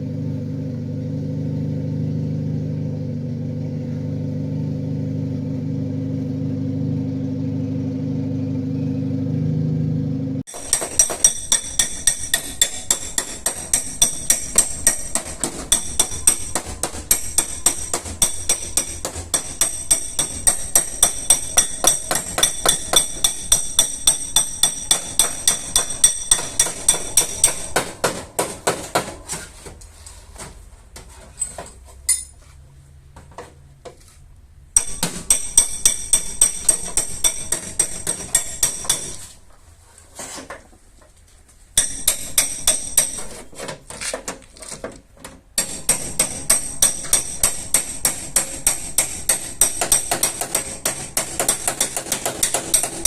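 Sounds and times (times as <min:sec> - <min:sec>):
hammer tapping on sheet metal: 0:10.5 - 0:29.4, 0:34.8 - 0:39.4, 0:41.8 - 0:43.5, 0:45.6 - 0:53.0.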